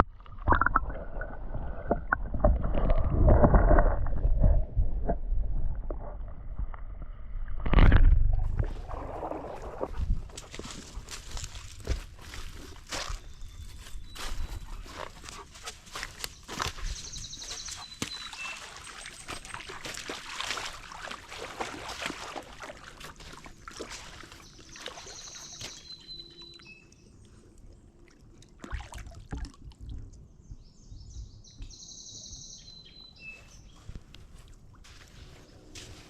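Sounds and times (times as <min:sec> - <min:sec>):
water splashing and trickling: 0:07.7 - 0:30.3
songbird singing: 0:12.2 - 0:20.6, 0:23.2 - 0:28.0, 0:30.1 - 0:36.0.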